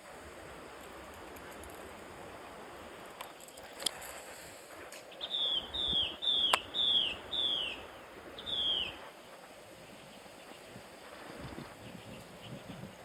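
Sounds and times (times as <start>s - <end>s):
bird whistling descending notes: 5.2s - 7.8s, 8.4s - 9.0s.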